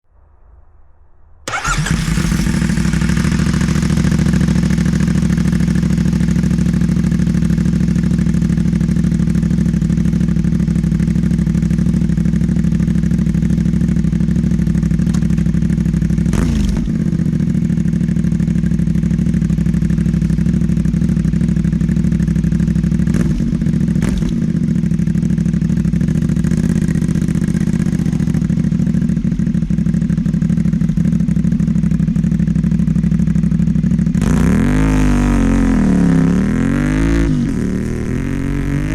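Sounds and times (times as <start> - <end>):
motorcycle engine idling: 1.5 - 38.9
motorcycle throttle blip: 15.0 - 15.7.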